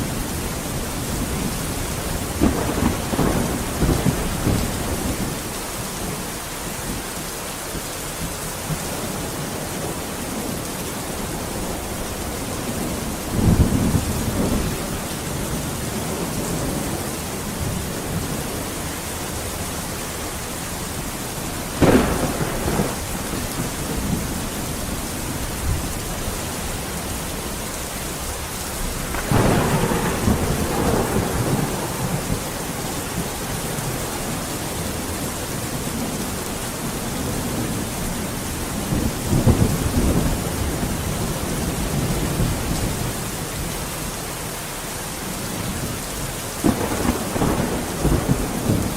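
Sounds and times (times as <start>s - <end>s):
heavy rain: 0.0s - 48.9s
thunder: 1.2s - 5.4s, 21.8s - 26.3s, 28.8s - 35.2s, 38.8s - 43.1s, 46.6s - 48.9s.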